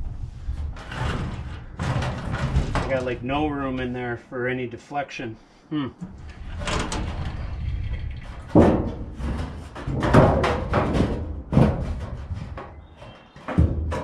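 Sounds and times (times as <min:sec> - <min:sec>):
metal roofing sheet banging: 0:00.0 - 0:04.0, 0:06.0 - 0:14.0
rattling metal clatter: 0:00.5 - 0:03.2, 0:06.0 - 0:14.0.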